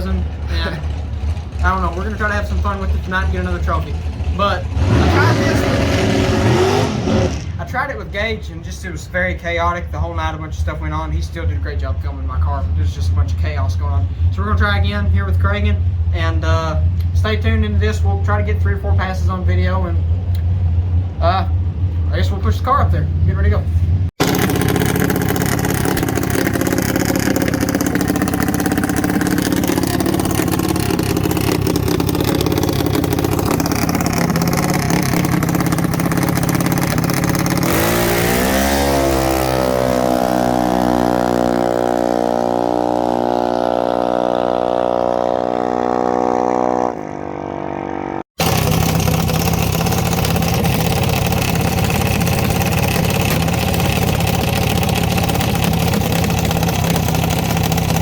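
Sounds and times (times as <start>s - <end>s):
small engine revving: 4.6s - 7.6s, 24.2s - 58.0s.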